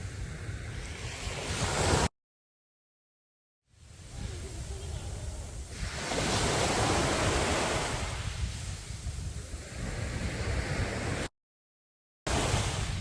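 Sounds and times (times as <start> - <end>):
sea waves washing onto beach: 0.0 - 2.1, 3.7 - 11.3, 12.3 - 13.0
wind rumbling on microphone: 0.0 - 2.1, 3.8 - 11.3, 12.3 - 13.0.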